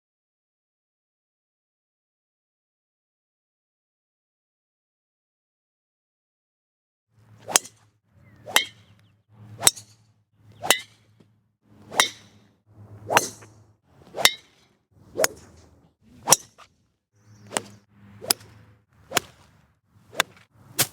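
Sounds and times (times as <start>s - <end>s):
golf club striking ball: 7.4s - 9.0s, 9.6s - 11.1s, 11.8s - 16.7s, 17.3s - 19.5s, 20.1s - 20.9s.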